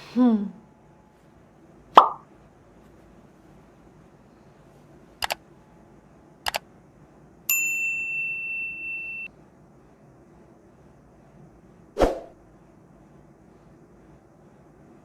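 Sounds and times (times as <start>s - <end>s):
bright metallic ding: 7.5s - 9.3s.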